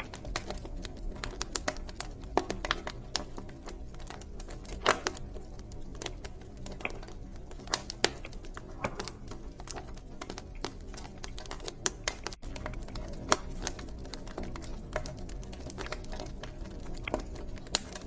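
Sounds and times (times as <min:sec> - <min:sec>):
fire pops and snaps: 0:00.0 - 0:18.0
flames rumbling: 0:00.0 - 0:18.0
wood fire crackling: 0:00.0 - 0:18.0.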